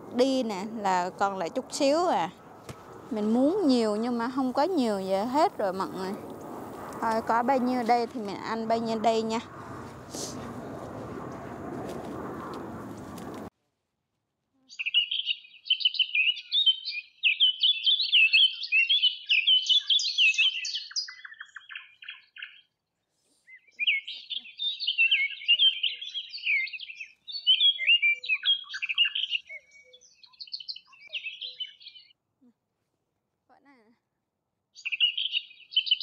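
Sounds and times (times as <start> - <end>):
songbird warbling: 14.7 - 22.6, 23.5 - 32.1, 34.8 - 36.0.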